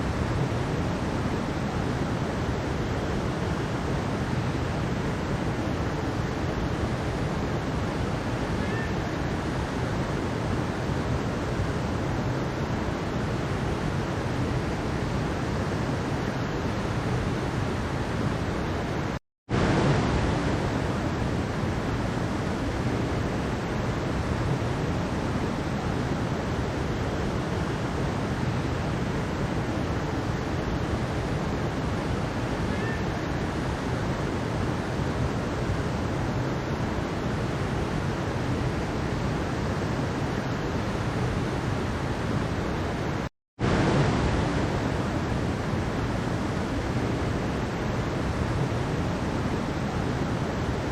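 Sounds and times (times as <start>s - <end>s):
stream water rushing over rocks: 0.0s - 50.9s.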